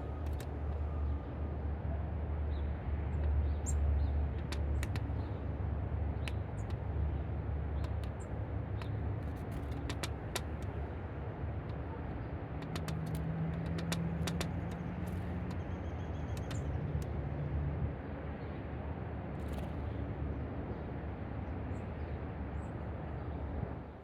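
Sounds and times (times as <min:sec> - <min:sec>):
motor vehicle rumbling: 0:00.0 - 0:24.0
light clicks: 0:00.1 - 0:01.1, 0:03.2 - 0:11.0, 0:11.6 - 0:17.2.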